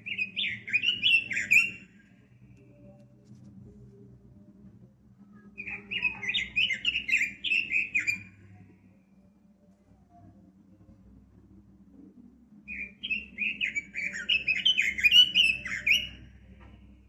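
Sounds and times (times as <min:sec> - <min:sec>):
bird singing warbling phrase: 0:00.0 - 0:01.8, 0:05.5 - 0:08.3, 0:12.7 - 0:16.2.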